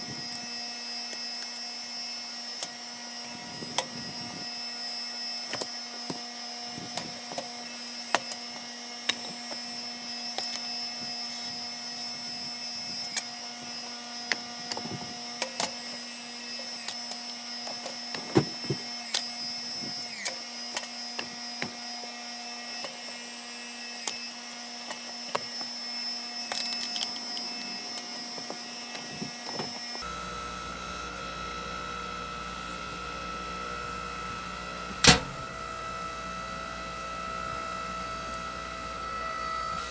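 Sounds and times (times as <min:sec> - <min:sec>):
hydraulic log splitter humming: 0:27.9 - 0:39.9.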